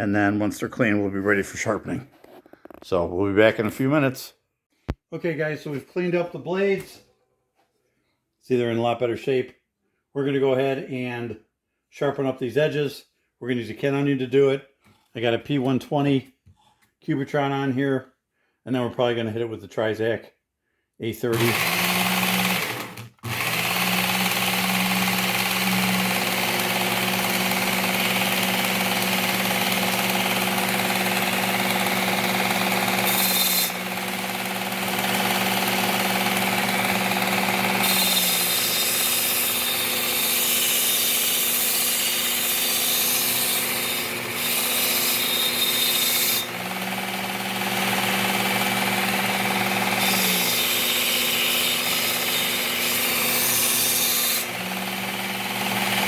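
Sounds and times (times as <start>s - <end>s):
belt sharpener grinding blade: 21.4s - 56.0s.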